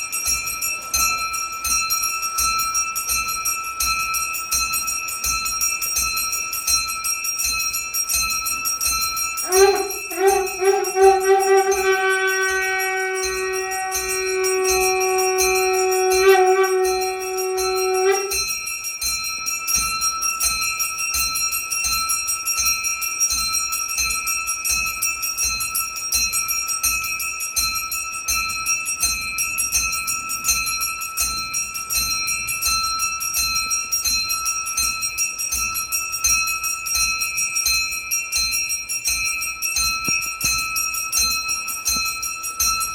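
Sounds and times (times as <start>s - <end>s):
hand bell ringing rapidly: 0.0s - 33.6s
conch shell blown: 9.4s - 18.5s.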